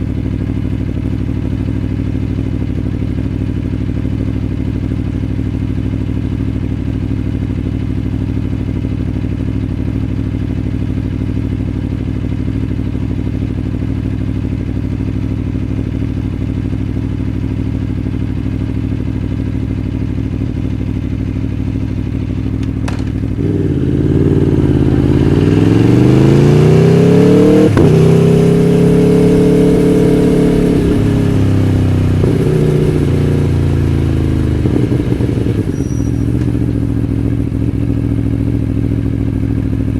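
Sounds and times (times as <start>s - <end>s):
motorcycle engine idling: 0.0s - 39.9s
motorcycle revving pulling away: 22.8s - 38.8s.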